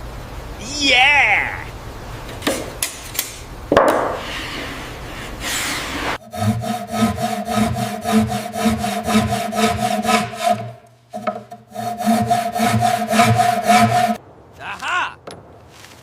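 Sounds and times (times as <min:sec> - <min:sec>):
steady hum: 0:00.0 - 0:14.2
rhythmic rasping sawing sound: 0:04.3 - 0:14.2.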